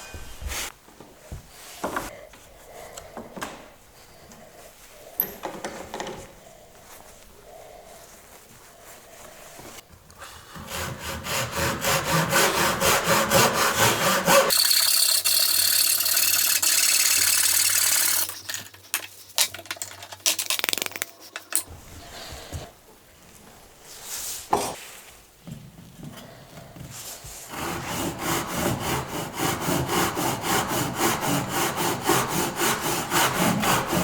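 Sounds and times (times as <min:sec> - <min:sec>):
handsaw cutting wood: 0:10.5 - 0:18.3, 0:27.5 - 0:34.0.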